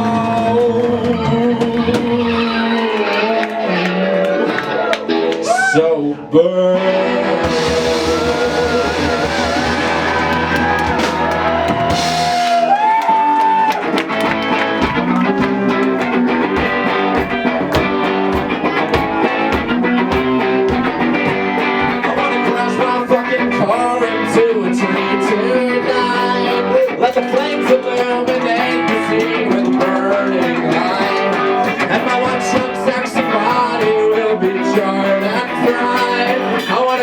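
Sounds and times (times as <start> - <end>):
bass guitar: 0.0 - 37.0
electric guitar: 0.0 - 37.0
drum beat: 7.4 - 22.5, 27.3 - 34.2.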